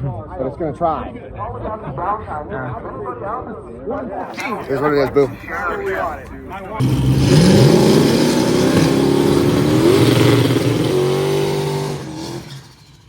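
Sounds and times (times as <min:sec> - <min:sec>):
race car engine revving: 0:04.4 - 0:13.0.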